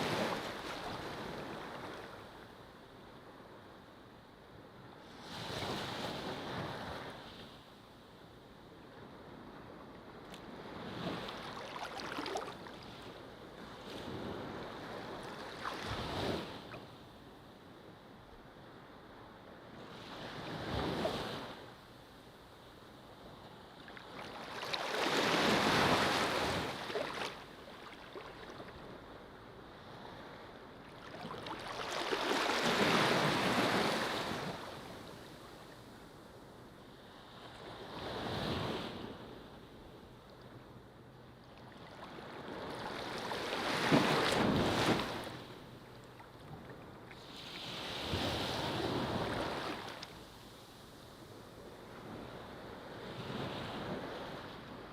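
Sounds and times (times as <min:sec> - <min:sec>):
ocean waves breaking on beach: 0:00.0 - 0:02.3, 0:10.4 - 0:16.9, 0:23.5 - 0:36.1, 0:41.6 - 0:45.8, 0:46.5 - 0:54.9.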